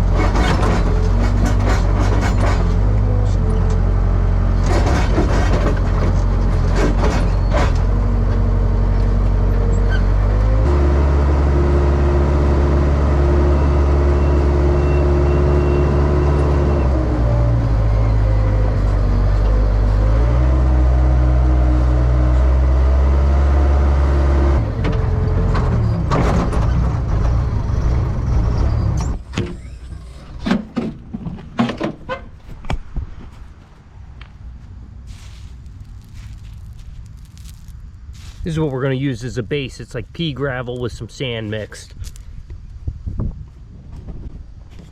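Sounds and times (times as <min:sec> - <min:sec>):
backhoe diesel engine revving: 0:00.0 - 0:30.4.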